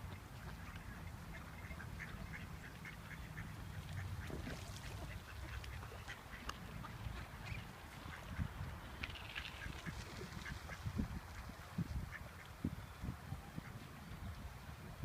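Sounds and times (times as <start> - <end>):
ducks quacking: 0.4 - 8.7, 9.5 - 12.6.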